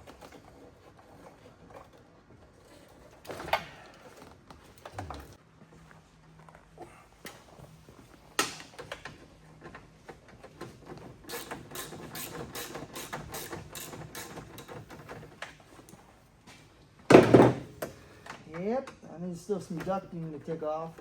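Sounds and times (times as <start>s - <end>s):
tools clicking and rattling: 8.4s - 15.6s.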